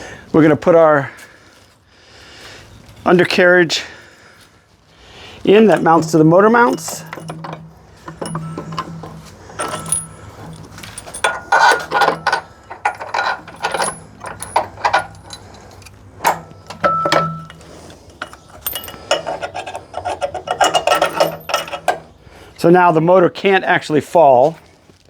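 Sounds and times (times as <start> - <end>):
steady low hum: 5.1 - 22.5
metal tools clinking and knocking: 5.4 - 22.2.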